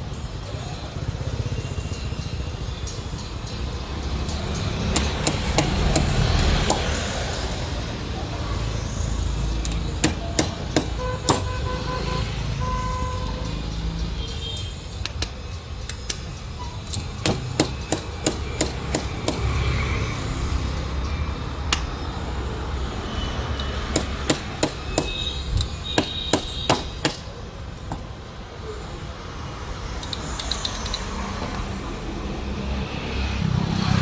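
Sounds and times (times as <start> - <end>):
hammer tapping on metal: 4.6 - 7.1, 9.6 - 11.6, 15.0 - 19.7, 23.6 - 28.1.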